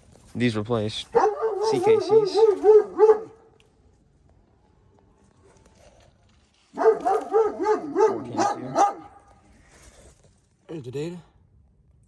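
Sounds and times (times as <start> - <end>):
dog barking rapidly: 1.1 - 3.4, 6.7 - 9.2.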